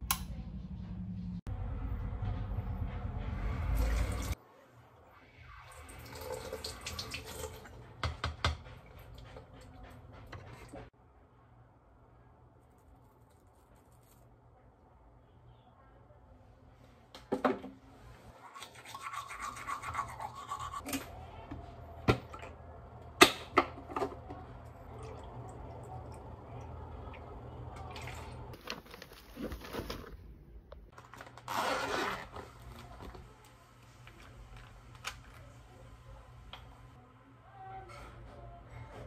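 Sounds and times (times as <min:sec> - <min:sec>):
toothbrush scrubbing teeth: 0:18.4 - 0:20.8.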